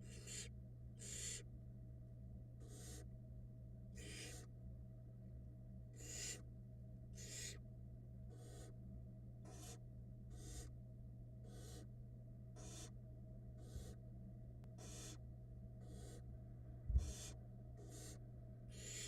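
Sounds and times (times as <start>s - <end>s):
owl nestlings hissing: 0.0s - 1.5s, 2.6s - 3.1s, 4.0s - 4.5s, 6.0s - 6.4s, 7.2s - 7.6s, 8.3s - 8.8s, 9.5s - 10.8s, 11.4s - 11.9s, 12.6s - 13.0s, 13.6s - 14.0s, 14.8s - 16.3s, 17.0s - 19.0s
low electrical hum: 0.0s - 19.0s.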